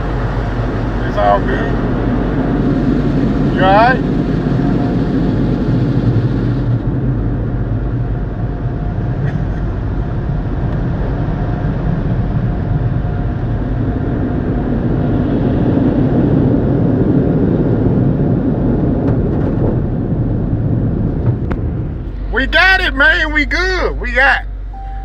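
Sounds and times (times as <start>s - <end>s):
faint steady whine: 0.0s - 6.8s
car interior engine and road rumble: 0.0s - 12.5s, 18.8s - 25.0s.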